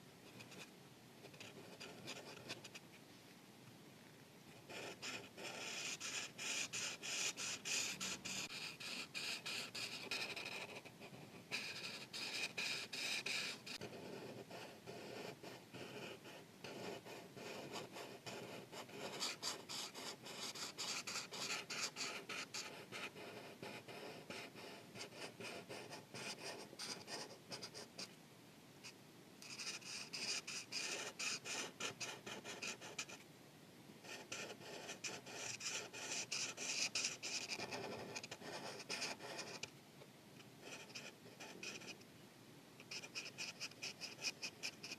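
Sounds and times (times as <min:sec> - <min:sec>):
markers scratching on paper: 0:04.7 - 0:27.9, 0:29.4 - 0:33.2, 0:34.1 - 0:39.7, 0:40.6 - 0:42.0, 0:42.9 - 0:44.9.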